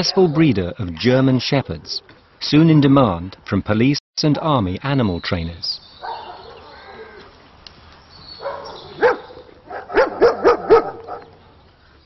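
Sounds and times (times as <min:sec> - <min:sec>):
dogs barking: 0:06.0 - 0:07.1, 0:08.4 - 0:11.5.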